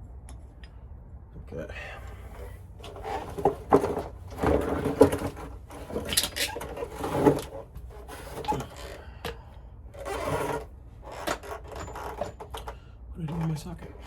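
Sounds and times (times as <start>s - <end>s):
hand tools and metal parts handled: 2.0s - 14.0s.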